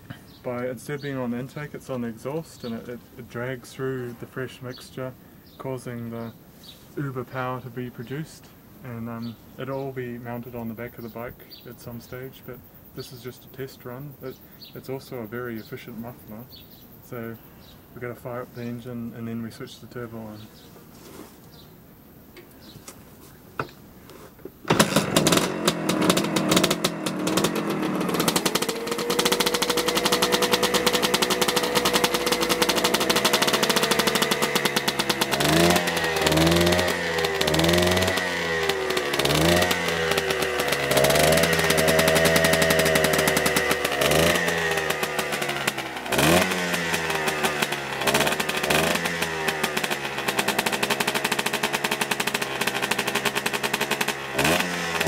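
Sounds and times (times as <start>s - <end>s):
motorcycle engine revving: 24.6s - 55.0s.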